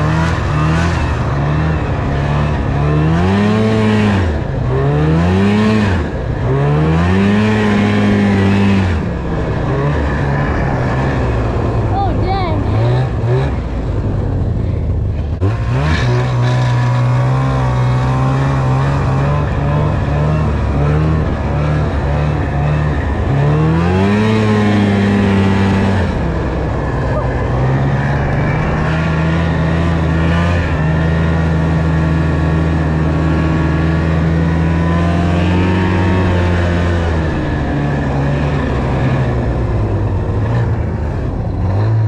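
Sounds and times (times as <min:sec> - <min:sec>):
snowmobile engine revving: 0:00.0 - 0:14.3, 0:15.3 - 0:42.0.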